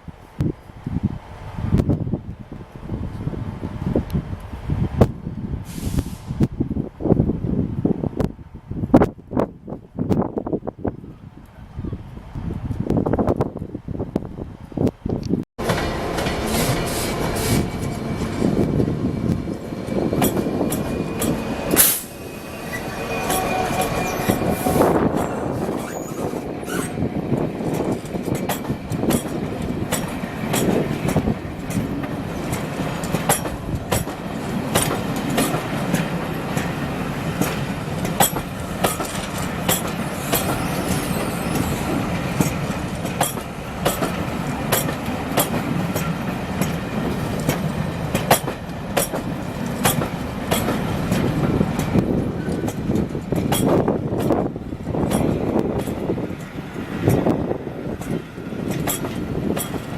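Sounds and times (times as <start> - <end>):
low train rumble: 0.0 - 59.9
train wheels clicking over rail joints: 15.6 - 22.2, 22.8 - 59.9.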